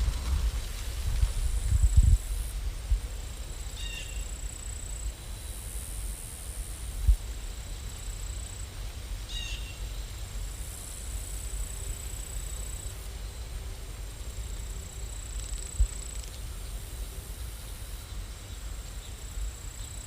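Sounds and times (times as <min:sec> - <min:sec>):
background rumble and hiss: 0:00.0 - 0:20.0.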